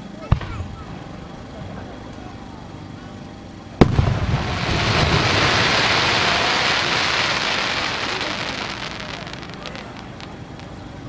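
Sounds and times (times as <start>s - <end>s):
firework crackles: 3.8s - 11.0s
firework shell burst rumble: 3.8s - 11.0s
firework stars sizzling hiss: 3.8s - 11.0s.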